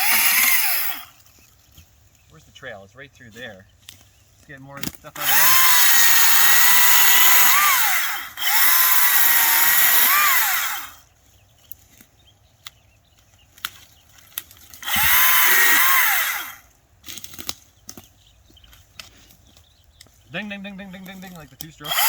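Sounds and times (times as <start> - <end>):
electric chainsaw whining: 0.0 - 1.4, 4.8 - 11.1, 14.7 - 17.5, 21.8 - 22.0
sharp clicks: 20.9 - 22.0.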